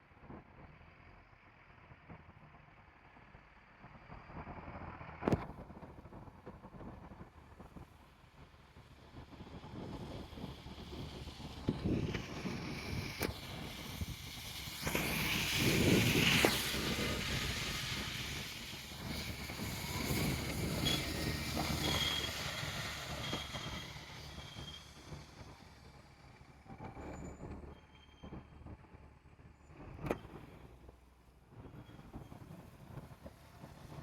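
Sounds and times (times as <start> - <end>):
vehicle passing by: 10.2 - 25.9.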